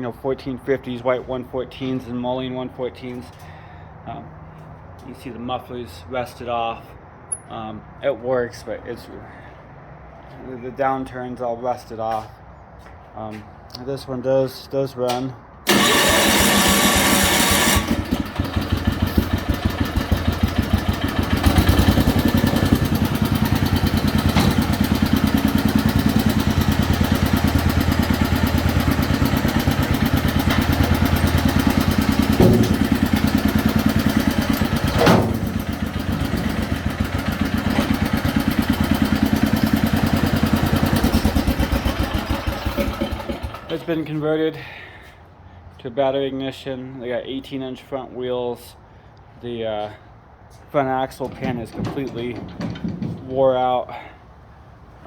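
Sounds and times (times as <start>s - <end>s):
garden tractor engine running: 15.6s - 44.1s, 50.9s - 54.0s.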